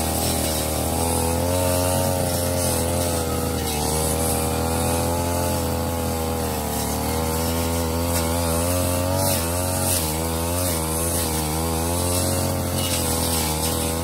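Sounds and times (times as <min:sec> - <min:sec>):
brush cutter engine revving: 0:00.0 - 0:14.0.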